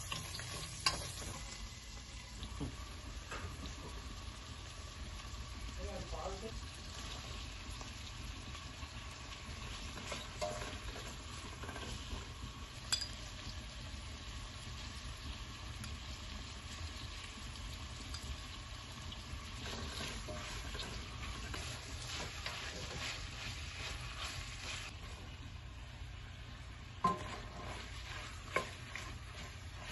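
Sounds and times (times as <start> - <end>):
food sizzling in a pan: 0.0 - 29.9
utensil scraping a pan: 19.5 - 25.2, 27.0 - 29.9.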